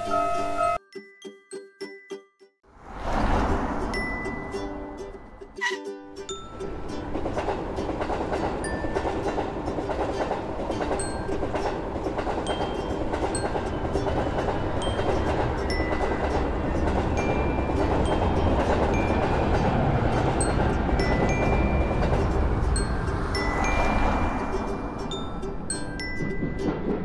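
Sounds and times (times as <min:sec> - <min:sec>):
train wheels rumbling on track: 0:06.4 - 0:27.0.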